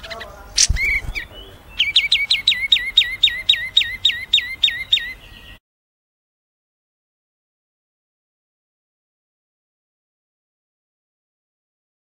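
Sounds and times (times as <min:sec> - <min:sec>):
songbird singing: 0:00.0 - 0:05.6.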